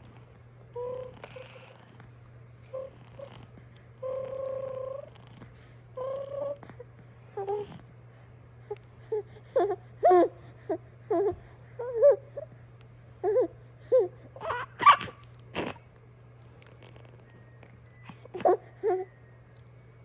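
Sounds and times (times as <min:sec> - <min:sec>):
baby squealing and babbling: 0:14.4 - 0:15.7.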